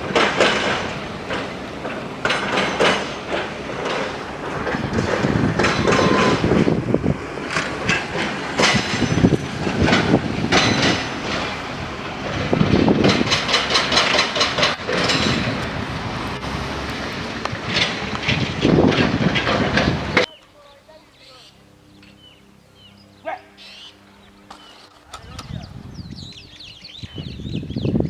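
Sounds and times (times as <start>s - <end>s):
metallic clanks and knocks: 0.0s - 6.7s, 7.4s - 15.8s, 17.1s - 20.3s
heavy machinery rumbling: 0.0s - 23.2s.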